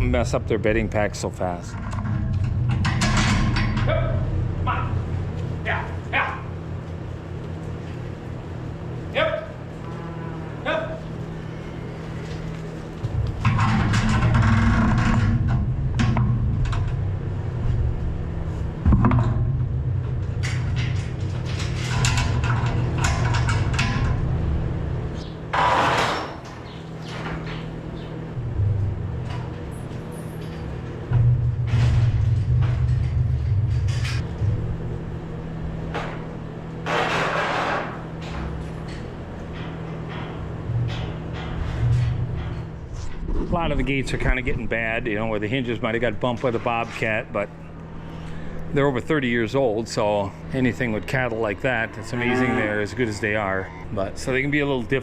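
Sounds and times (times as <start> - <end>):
metal scraping: 50.0 - 55.0.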